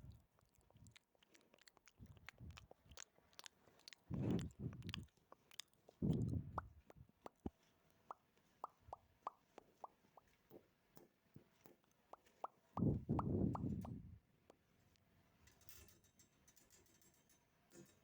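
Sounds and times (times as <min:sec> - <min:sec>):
mouth pops and clicks: 0:01.6 - 0:10.3, 0:12.1 - 0:14.6
mouth noise: 0:12.8 - 0:14.0.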